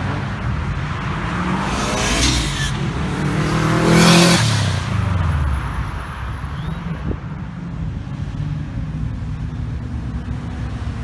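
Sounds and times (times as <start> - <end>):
car accelerating past: 0.0 - 8.4.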